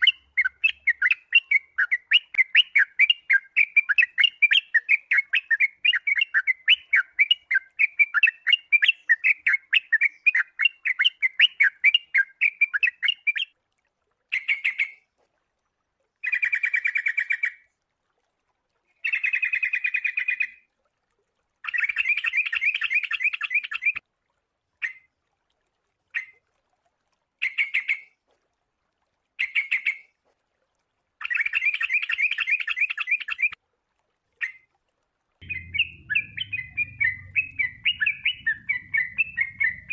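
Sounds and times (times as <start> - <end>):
bulbul chattering trills: 35.4 - 39.9
bulbul chirping: 35.4 - 39.9.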